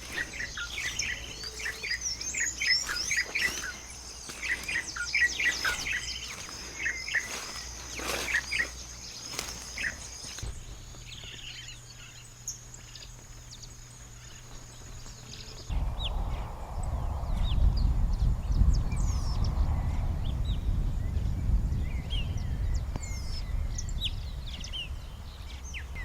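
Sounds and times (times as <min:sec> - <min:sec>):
high-pitched insect buzz: 0:00.0 - 0:10.5
low rumbling noise: 0:00.0 - 0:13.0, 0:13.6 - 0:26.0
songbirds chirping: 0:00.0 - 0:26.0.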